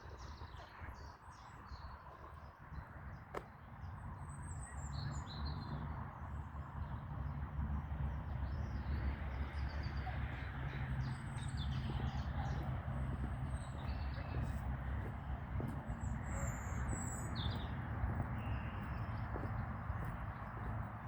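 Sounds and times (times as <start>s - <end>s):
small birds chirping: 8.4s - 21.0s.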